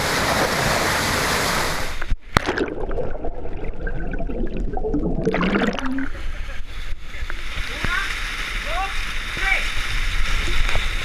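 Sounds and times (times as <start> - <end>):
water gurgling: 0.0 - 11.0
water rushing: 0.0 - 11.0.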